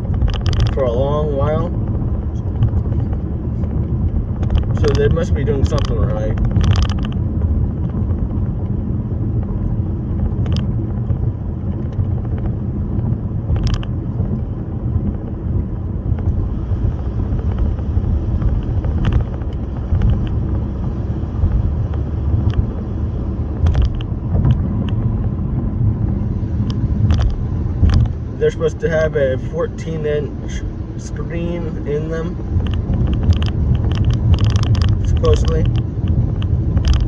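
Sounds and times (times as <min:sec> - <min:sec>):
car rumbling on the move: 0:00.0 - 0:37.0.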